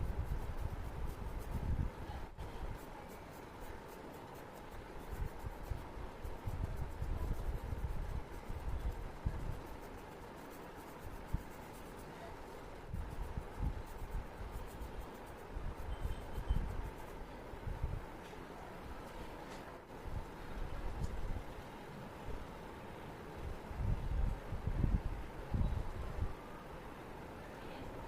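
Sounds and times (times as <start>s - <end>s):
paintbrush stroking paper: 0.0s - 18.0s
faint steady hum: 0.0s - 28.0s.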